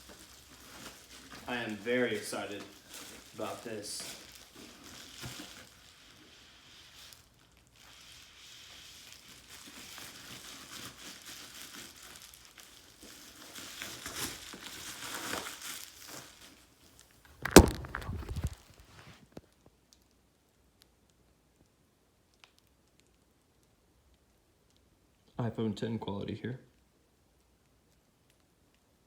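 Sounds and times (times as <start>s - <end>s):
plastic wrapping crinkling: 0.0s - 20.2s.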